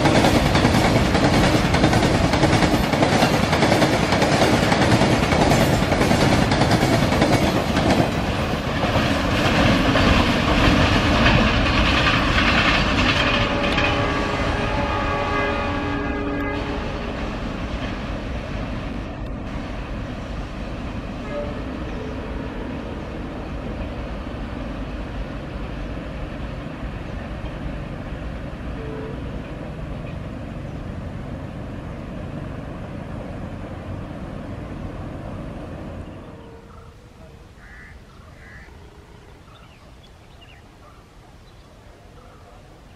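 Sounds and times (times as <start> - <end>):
train wheels clattering: 0.0 - 15.1
train horn: 13.1 - 17.4, 21.2 - 23.3, 28.7 - 29.5, 36.2 - 37.9.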